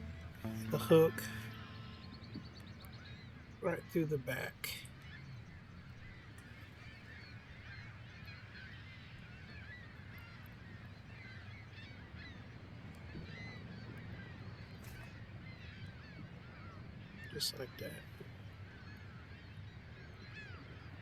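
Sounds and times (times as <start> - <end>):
low steady rumble: 0.0 - 3.6
distant flock of birds calling: 0.0 - 21.0.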